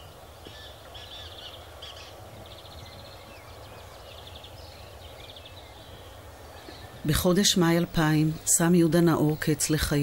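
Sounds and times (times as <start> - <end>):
birds chirping and trilling: 0.0 - 10.0.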